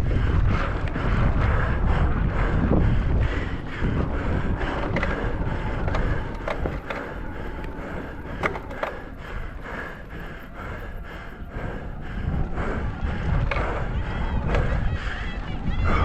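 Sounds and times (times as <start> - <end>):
bike rattling and clicking: 0.0 - 15.8
wind buffeting the microphone: 0.0 - 16.0
tyres rolling over rough ground: 3.4 - 12.0.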